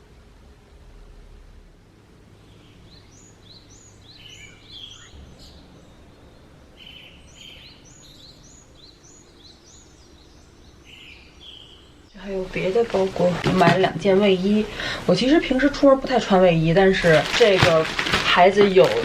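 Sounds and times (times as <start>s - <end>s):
faint low rumble: 0.0s - 10.8s
small birds chirping: 2.3s - 19.0s.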